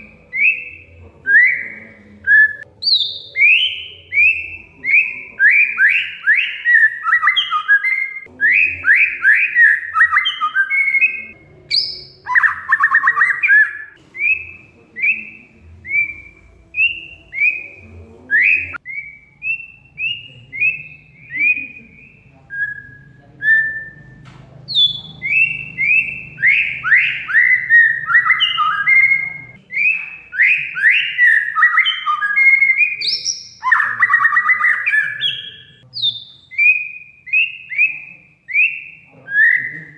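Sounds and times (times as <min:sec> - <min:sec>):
bird singing whistled runs: 0:18.4 - 0:39.8.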